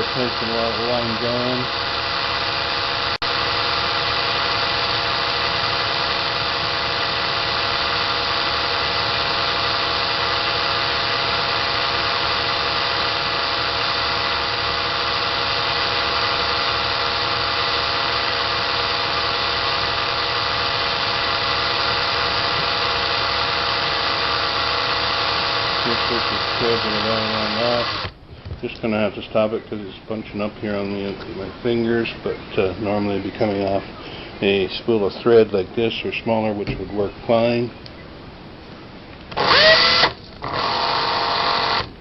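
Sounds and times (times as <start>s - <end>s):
cordless drill motor whirring: 0.0s - 28.6s, 39.2s - 42.0s.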